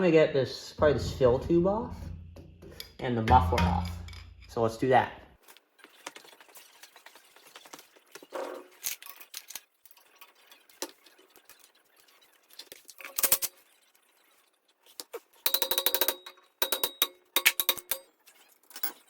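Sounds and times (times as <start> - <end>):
metallic clatter: 0.8 - 4.6.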